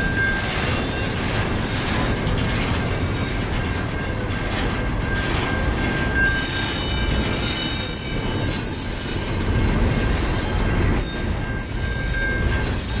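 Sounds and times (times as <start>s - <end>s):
high-pitched wheel squeal: 0.0s - 2.2s, 5.1s - 13.0s
freight train wheels rumbling: 0.0s - 13.0s.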